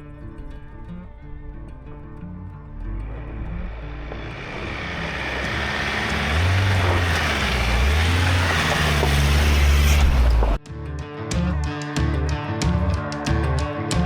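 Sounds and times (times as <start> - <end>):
vehicle engine and road noise: 0.0 - 10.6.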